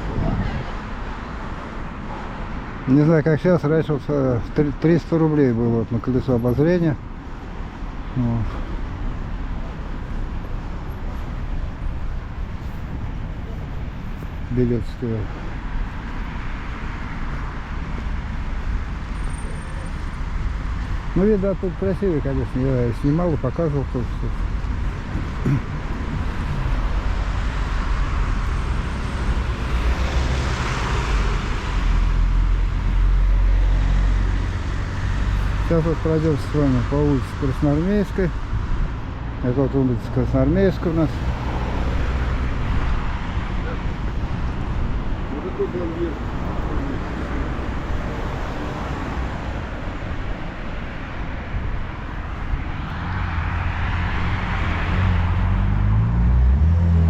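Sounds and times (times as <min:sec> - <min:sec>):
low traffic rumble: 0:00.0 - 0:57.0
vehicle passing: 0:52.0 - 0:57.0.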